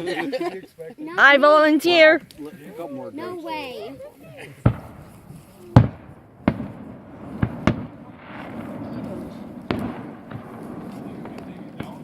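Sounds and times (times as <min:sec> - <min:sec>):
fireworks bangs: 0:04.6 - 0:12.0
fireworks hiss: 0:04.6 - 0:12.0.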